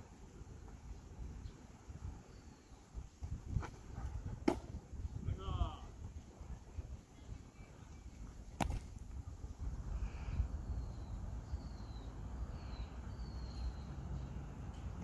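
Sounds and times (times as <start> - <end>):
wood popping with sharp crack: 4.4 - 4.8, 8.5 - 9.0.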